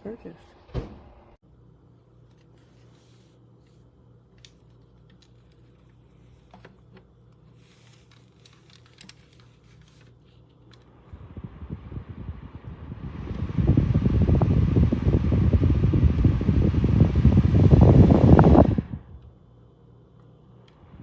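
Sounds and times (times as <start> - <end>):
low steady hum: 0.0 - 21.0
desk fan air rushing on microphone: 10.9 - 19.5, 20.7 - 21.0.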